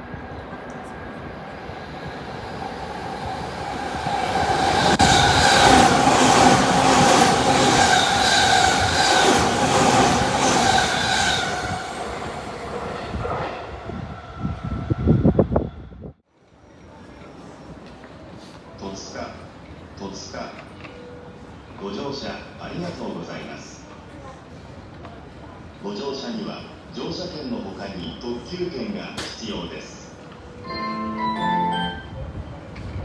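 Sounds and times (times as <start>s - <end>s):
electric train passing: 0.0s - 16.0s, 30.4s - 33.0s
train whine: 0.0s - 16.1s.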